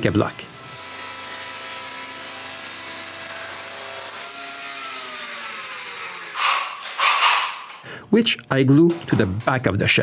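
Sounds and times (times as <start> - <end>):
power saw motor winding down: 0.6 - 7.6.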